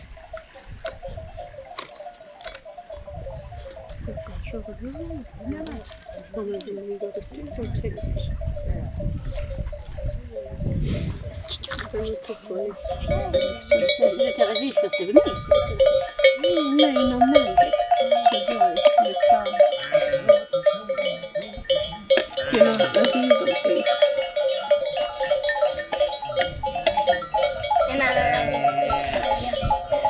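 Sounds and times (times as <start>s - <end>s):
neck bells clinking: 1.0s - 4.0s, 12.1s - 30.0s
goat or sheep bleating: 16.5s - 21.4s, 22.0s - 24.3s, 26.2s - 30.0s.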